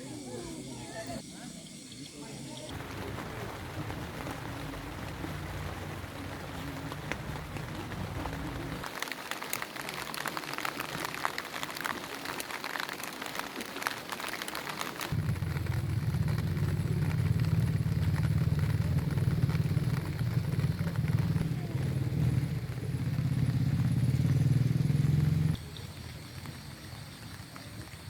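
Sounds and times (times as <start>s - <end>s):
rain pattering: 2.6s - 28.0s
low engine hum: 2.8s - 8.8s, 15.2s - 25.6s.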